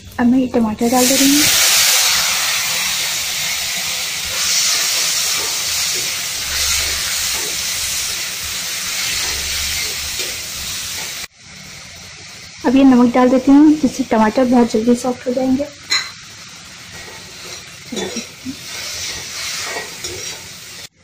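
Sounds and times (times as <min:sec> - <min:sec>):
vegetables sizzling in hot oil: 0:00.3 - 0:21.0.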